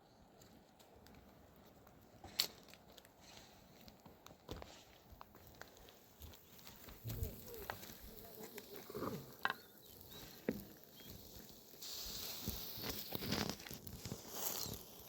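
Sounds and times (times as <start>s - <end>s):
steady hiss: 4.5s - 15.0s
rustling: 5.6s - 15.0s.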